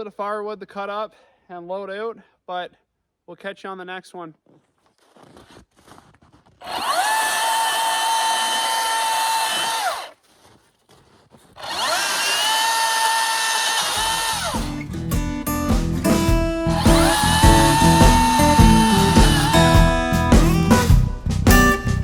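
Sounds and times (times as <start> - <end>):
chainsaw cutting firewood: 6.6 - 10.1, 11.6 - 14.8, 16.7 - 20.0.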